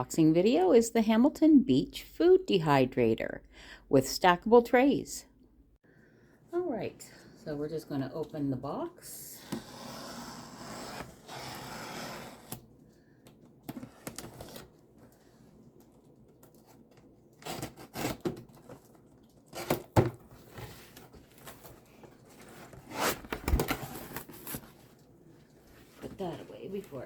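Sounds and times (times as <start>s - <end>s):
tape ripping off cardboard: 17.4s - 18.8s
cardboard flaps rustling: 19.6s - 24.9s.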